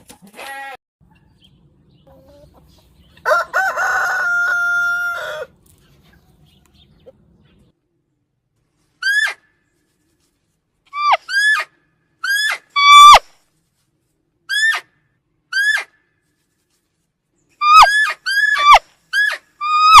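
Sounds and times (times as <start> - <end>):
high-pitched animal calls: 10.9 - 13.2, 14.5 - 14.9, 15.5 - 16.0, 17.6 - 20.0.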